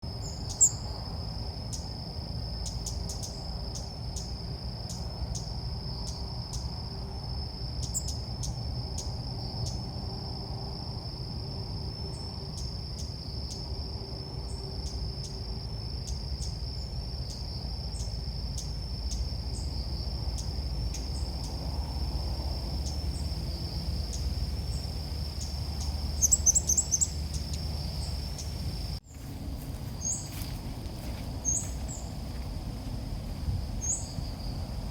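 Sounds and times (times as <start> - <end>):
bird chirps: 0.2 - 0.9, 24.1 - 29.0, 31.4 - 32.1
low rumble: 27.0 - 34.9.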